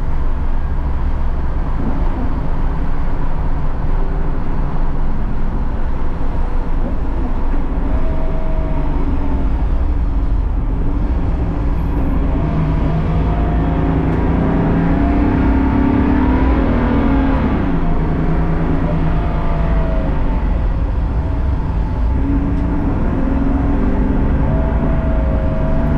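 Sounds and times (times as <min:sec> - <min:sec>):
race car engine running hard: 0:00.0 - 0:25.9.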